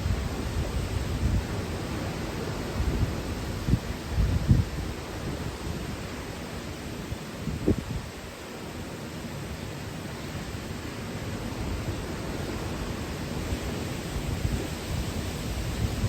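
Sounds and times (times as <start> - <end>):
strong wind rushing: 2.7 - 5.6, 14.1 - 16.0.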